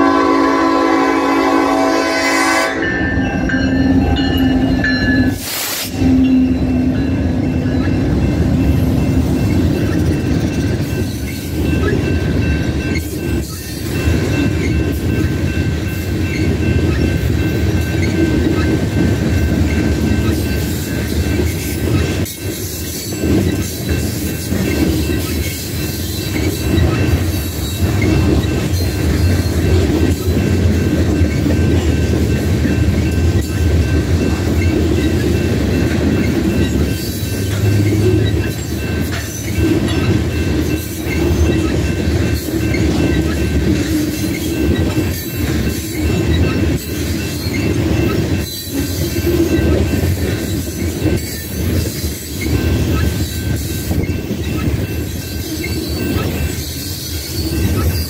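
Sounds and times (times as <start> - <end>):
crossing bell ringing: 0.0 - 58.0
train rolling past: 0.0 - 58.0
wheels clacking over rail joints: 6.0 - 58.0.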